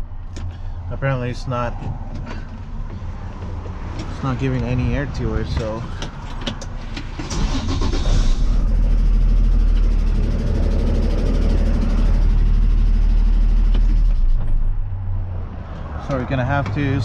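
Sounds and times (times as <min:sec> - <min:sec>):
heavy truck engine running: 0:05.0 - 0:14.6.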